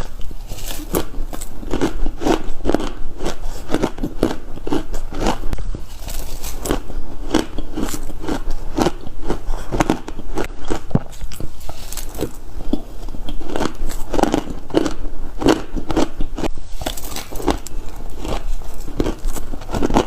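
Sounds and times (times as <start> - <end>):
ice being chewed crunching: 0.0 - 20.0.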